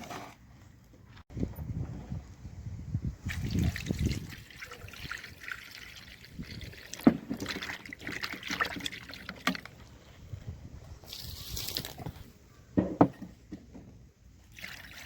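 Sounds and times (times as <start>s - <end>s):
water trickling and splashing: 3.2s - 10.3s, 14.4s - 15.0s.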